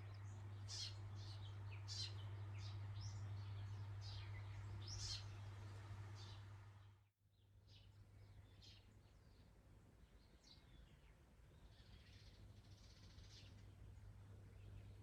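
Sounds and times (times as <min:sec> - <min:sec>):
low steady hum: 0:00.0 - 0:07.0.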